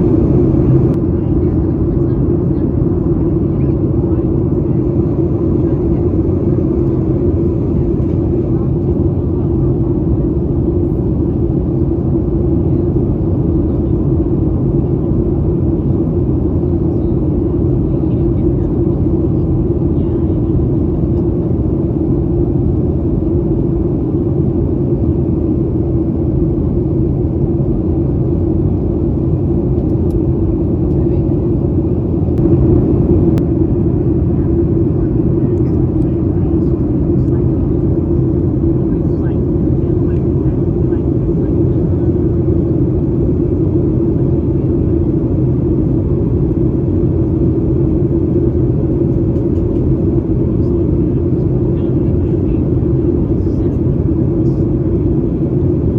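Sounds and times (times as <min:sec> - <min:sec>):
air rushing over fuselage: 0:00.0 - 0:01.0, 0:31.5 - 0:38.8
airplane cabin drone: 0:00.0 - 0:55.9
jet engines humming: 0:00.0 - 0:55.9.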